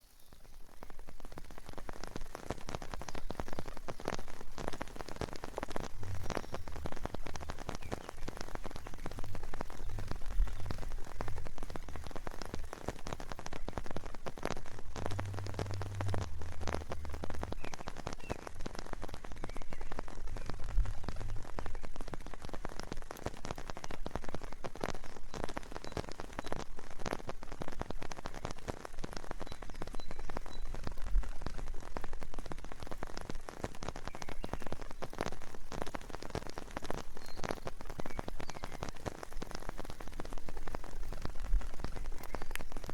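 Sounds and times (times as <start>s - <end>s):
raindrops ticking close by: 0.0s - 42.9s
steady rain: 0.0s - 42.9s
low rumble: 5.7s - 22.0s.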